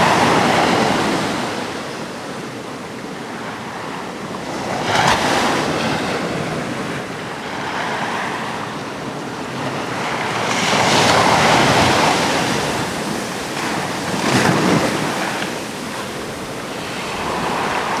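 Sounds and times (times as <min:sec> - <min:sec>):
sea waves breaking: 0:09.5 - 0:18.0.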